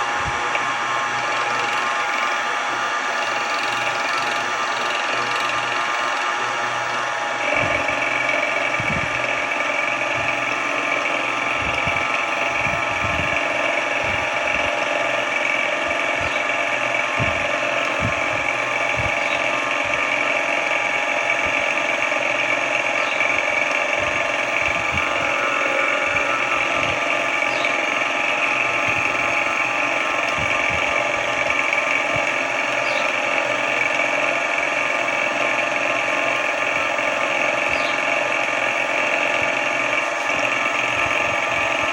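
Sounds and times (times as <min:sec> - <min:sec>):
mill-drill motor whine: 0:00.0 - 0:41.9.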